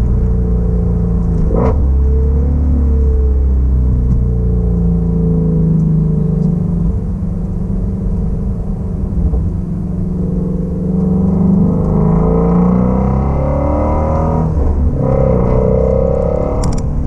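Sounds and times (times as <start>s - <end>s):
car engine and exhaust: 0.0s - 17.0s.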